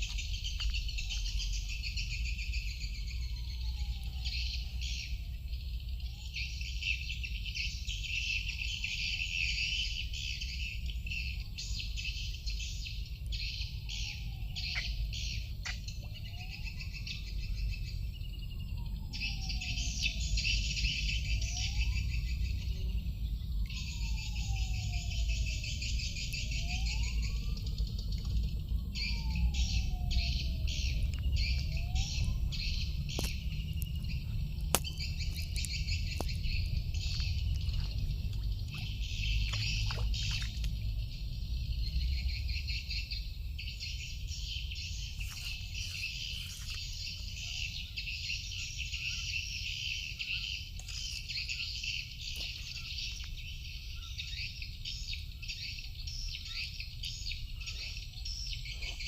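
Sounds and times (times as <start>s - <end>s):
faint gliding whistle: 0.0s - 40.6s, 41.2s - 59.0s
insects chirping: 0.0s - 59.0s
steady low rumble: 12.2s - 59.0s.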